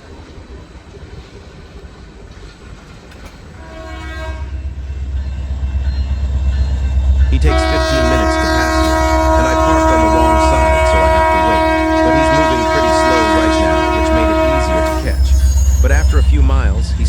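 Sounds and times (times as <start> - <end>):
diesel locomotive engine rumble: 0.0 - 17.0
train air horn blast: 3.6 - 4.7, 7.3 - 17.0.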